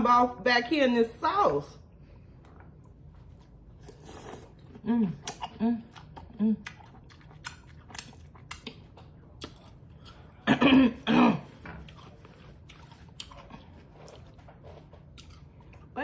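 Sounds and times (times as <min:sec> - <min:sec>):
person chewing food: 0:02.2 - 0:16.0
mouth clicks and smacks: 0:05.2 - 0:10.1.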